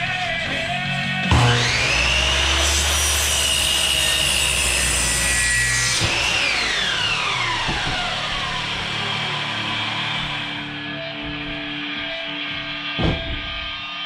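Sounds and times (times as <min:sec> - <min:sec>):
power tool whining and spinning down: 0:01.2 - 0:11.0.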